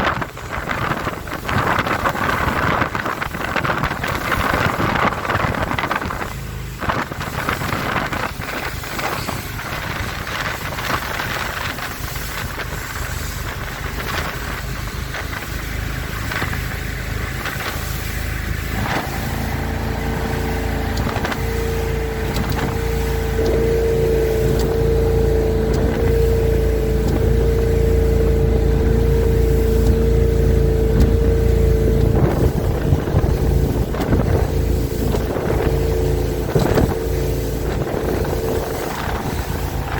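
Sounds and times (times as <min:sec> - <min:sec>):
boat engine rumbling: 0:00.0 - 0:39.9
wind and water rushing: 0:00.0 - 0:39.9.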